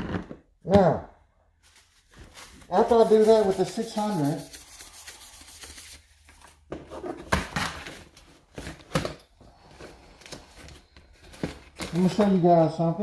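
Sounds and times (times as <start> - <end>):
supplies rustling: 1.6 - 7.0.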